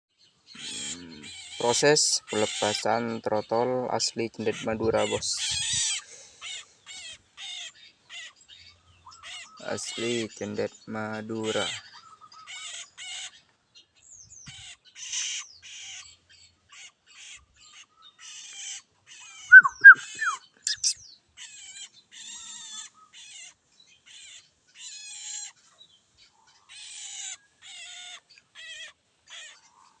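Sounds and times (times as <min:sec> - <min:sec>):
loud sharp bird chirps: 0:14.2 - 0:23.2
bird chattering scratchy bursts: 0:19.5 - 0:21.8.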